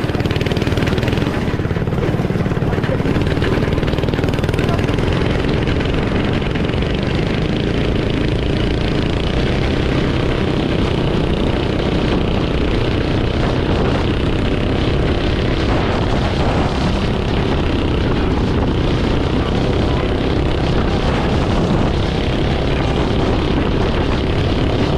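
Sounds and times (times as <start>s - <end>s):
small engine running: 0.0s - 24.9s
wind buffeting microphone: 0.0s - 24.9s.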